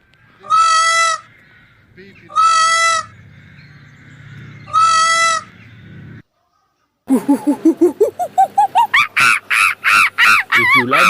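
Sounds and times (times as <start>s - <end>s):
animal honking call: 0.4s - 5.7s
rising chirps: 7.1s - 9.1s.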